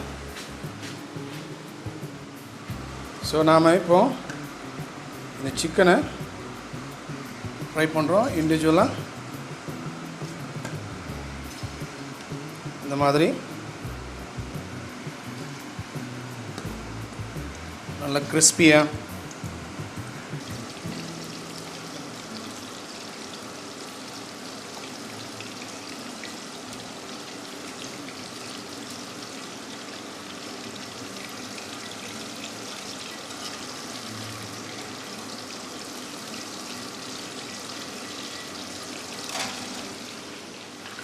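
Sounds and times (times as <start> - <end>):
chicken deep-frying in hot oil: 10.9 - 41.0.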